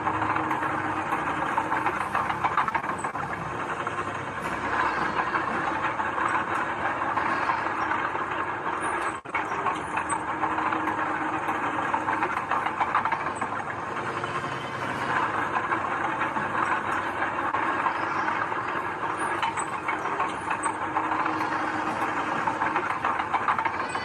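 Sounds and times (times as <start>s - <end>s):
heavy earthmoving machinery running: 0.0s - 24.0s.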